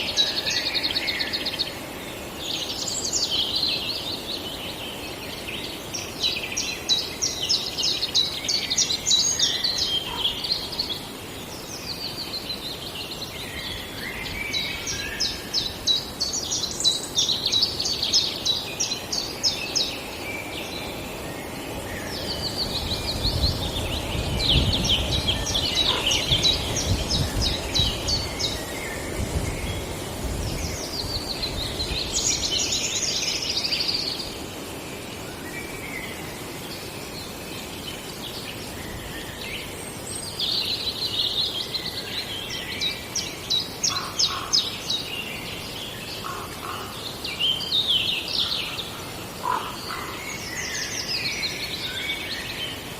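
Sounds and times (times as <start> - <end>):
songbird singing: 0.0 - 52.9.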